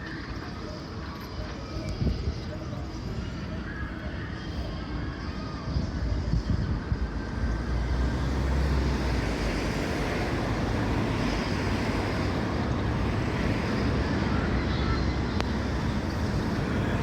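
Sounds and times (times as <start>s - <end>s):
vehicle passing by: 7.6s - 17.0s.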